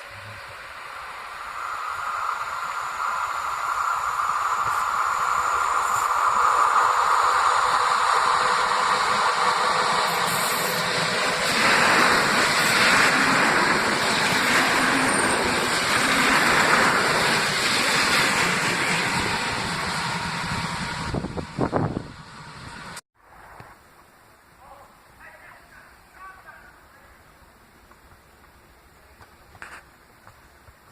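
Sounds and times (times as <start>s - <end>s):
train running past: 0.0s - 23.0s.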